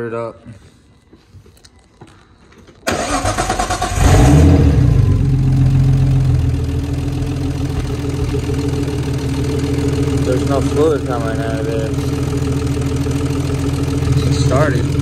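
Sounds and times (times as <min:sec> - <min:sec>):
car engine starter cranking: 0:02.9 - 0:04.6
car engine idling: 0:02.9 - 0:15.0.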